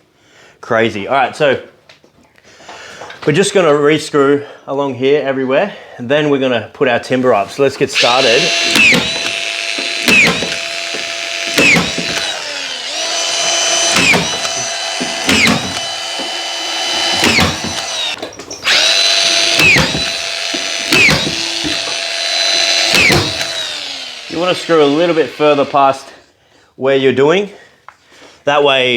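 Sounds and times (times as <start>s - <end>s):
screw gun whining: 8.0s - 26.1s.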